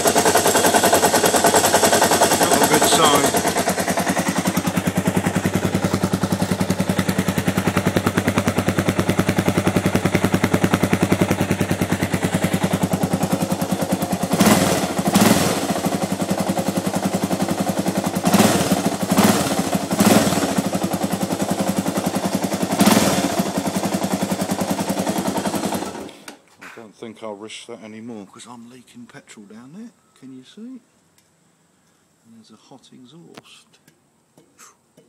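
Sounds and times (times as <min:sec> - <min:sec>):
motorcycle engine idling: 0:00.0 - 0:26.2.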